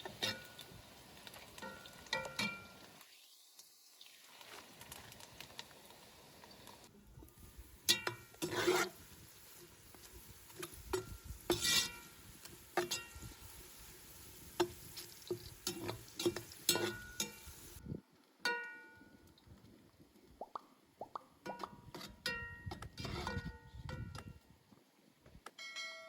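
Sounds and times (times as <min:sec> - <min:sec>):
frying hiss: 0:00.0 - 0:18.0
spoon scraping pot: 0:07.9 - 0:09.0, 0:10.6 - 0:12.1, 0:14.6 - 0:17.5.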